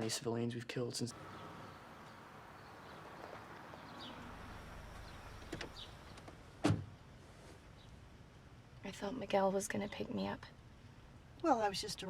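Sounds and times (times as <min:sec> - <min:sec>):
low background noise: 0:00.0 - 0:12.0
car door shutting: 0:05.3 - 0:06.9.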